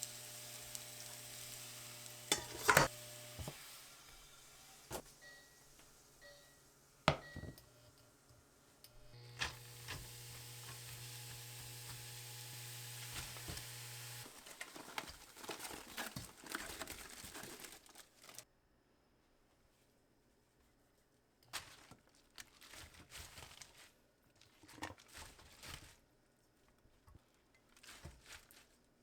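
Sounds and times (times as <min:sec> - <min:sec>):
crinkling: 0:00.0 - 0:03.5, 0:09.1 - 0:18.4, 0:21.4 - 0:29.0
small electric appliance humming: 0:00.0 - 0:08.0, 0:08.8 - 0:14.4
kitchen clatter: 0:02.1 - 0:03.6, 0:14.3 - 0:18.4.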